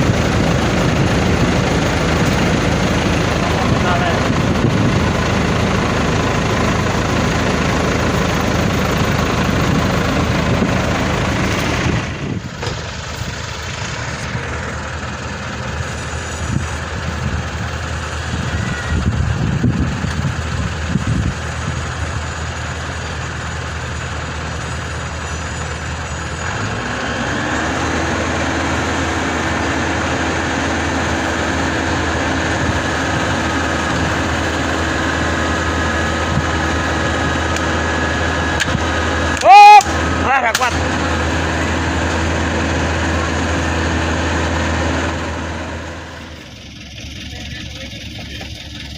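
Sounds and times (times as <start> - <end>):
heavy diesel engines running: 0.0 - 48.9.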